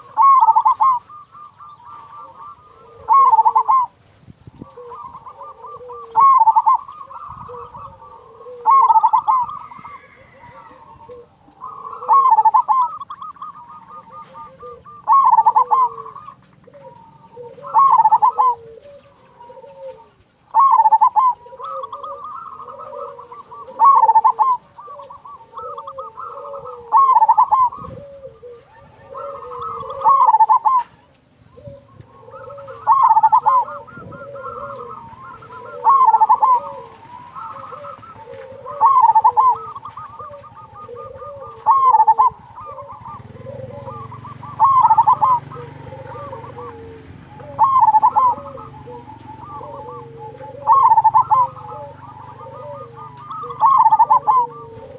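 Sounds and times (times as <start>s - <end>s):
doves cooing: 0.0s - 54.9s.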